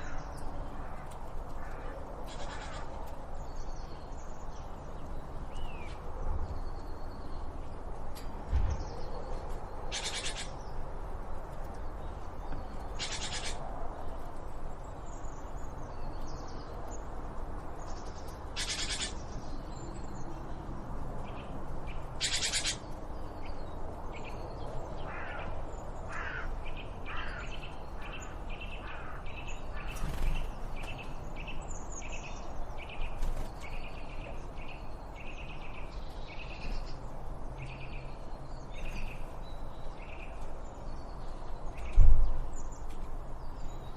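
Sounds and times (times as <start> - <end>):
harsh bird calls: 0.0 - 3.2, 9.8 - 10.9, 12.5 - 13.8, 18.0 - 19.6, 21.4 - 23.6, 24.2 - 37.0.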